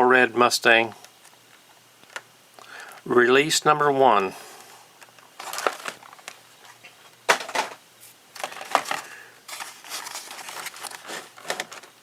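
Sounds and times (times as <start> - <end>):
plastic blister pack clicks and crinkles: 5.0 - 7.7, 8.4 - 12.0
crackly rustling of packaging: 5.0 - 12.0.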